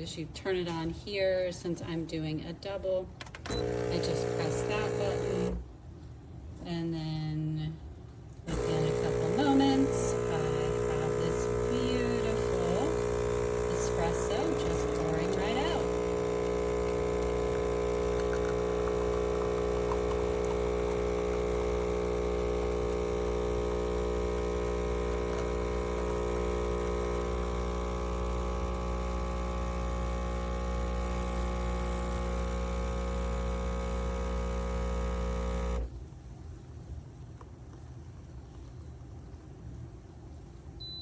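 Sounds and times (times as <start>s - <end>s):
espresso machine pump humming: 3.5s - 5.6s, 8.5s - 35.9s.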